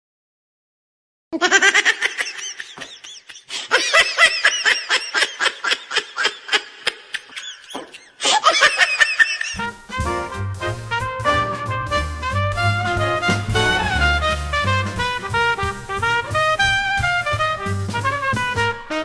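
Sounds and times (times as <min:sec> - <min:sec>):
high-pitched giggling: 0:01.4 - 0:09.6
swing jazz with brass: 0:09.5 - 0:19.0.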